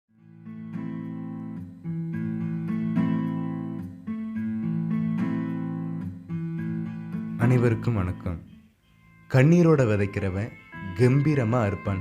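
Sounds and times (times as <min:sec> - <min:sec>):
strummed acoustic guitar chords: 0:00.2 - 0:07.8.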